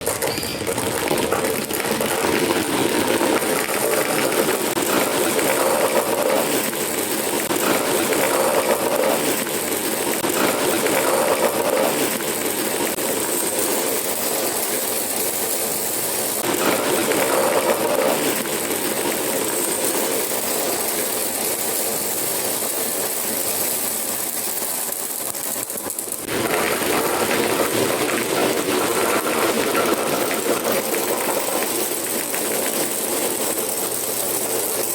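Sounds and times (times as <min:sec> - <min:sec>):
marbles rolling on a track: 0:00.0 - 0:34.9.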